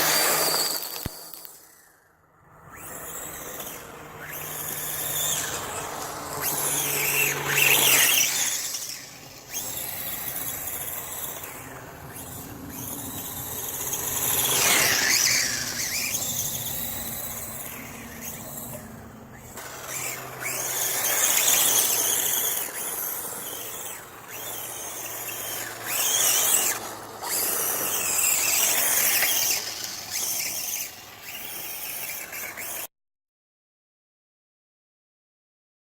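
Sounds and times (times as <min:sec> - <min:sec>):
electric motor whining: 0:00.0 - 0:32.9.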